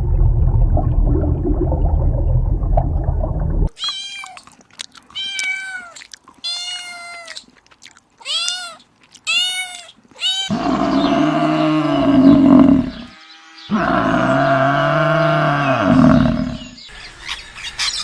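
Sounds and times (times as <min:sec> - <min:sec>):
cat meowing: 0:05.1 - 0:07.4, 0:08.2 - 0:10.6
deep animal call: 0:10.4 - 0:16.8.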